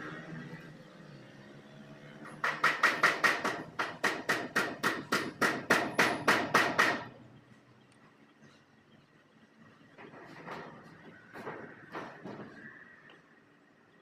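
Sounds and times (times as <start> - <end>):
hammer striking metal: 2.4 - 7.1.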